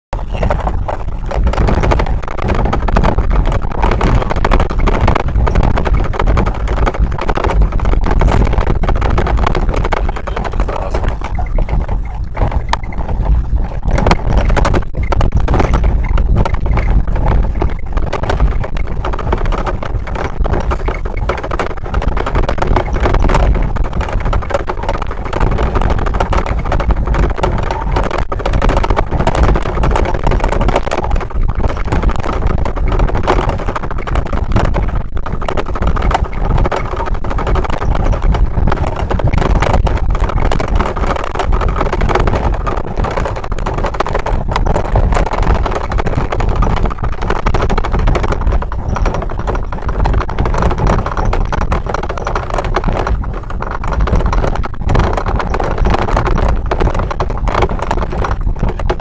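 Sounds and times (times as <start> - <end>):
wind noise on microphone: 0.0 - 59.0
train rumbling and clattering: 0.2 - 31.2.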